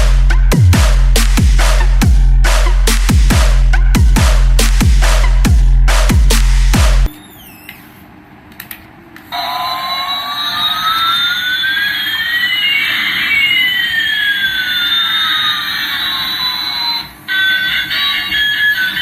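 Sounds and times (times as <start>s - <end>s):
electronic jet engine roar: 9.3s - 19.0s.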